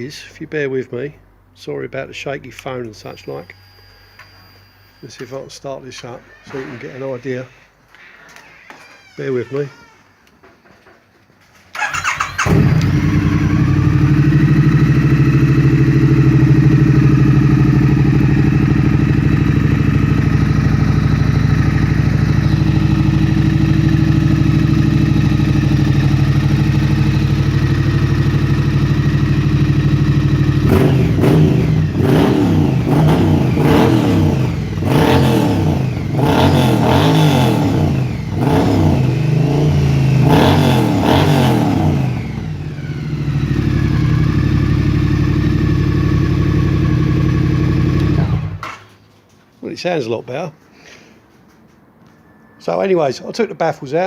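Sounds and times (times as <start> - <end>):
motorcycle engine idling and revving: 11.8 - 48.8.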